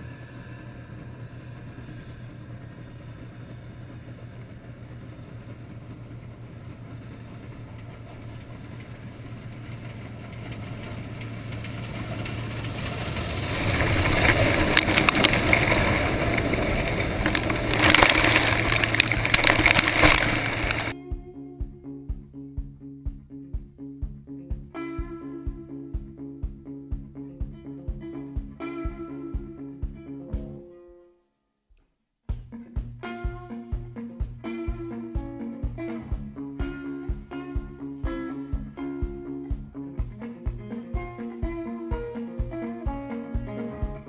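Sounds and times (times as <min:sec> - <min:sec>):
combine harvester engine hum: 0:00.0 - 0:21.0
sharp crackles: 0:06.1 - 0:21.0
slide guitar music: 0:13.6 - 0:22.1, 0:24.7 - 0:31.0, 0:32.5 - 0:44.0.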